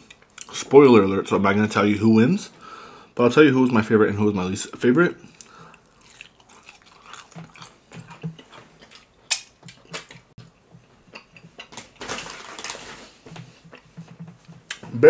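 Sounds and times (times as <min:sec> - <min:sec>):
breathy sound: 0:05.2 - 0:06.0
chewing and mouth sounds: 0:05.3 - 0:11.7.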